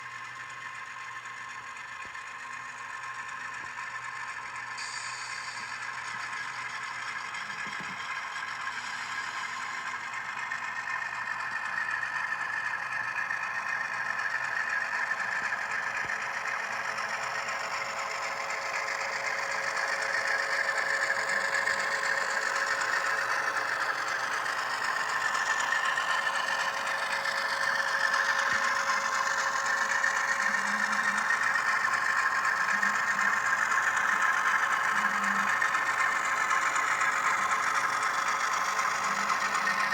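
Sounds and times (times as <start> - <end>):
diesel engine sound from small speakers: 0.0 - 39.9
model train wheels clattering: 13.9 - 39.9.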